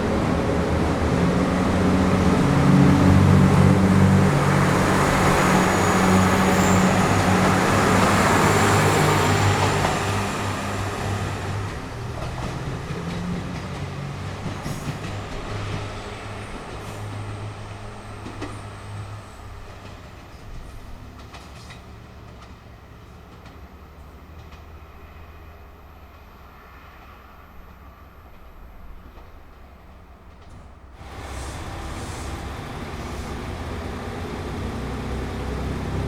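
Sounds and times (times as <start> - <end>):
diesel railcar engine drone: 0.0 - 36.0
wheels clicking over rail joints: 18.2 - 23.7, 30.2 - 36.0.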